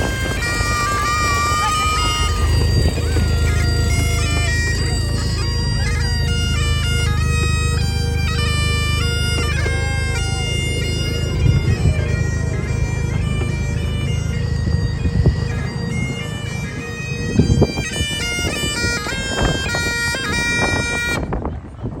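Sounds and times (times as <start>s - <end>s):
bagpipes playing: 0.0s - 22.0s.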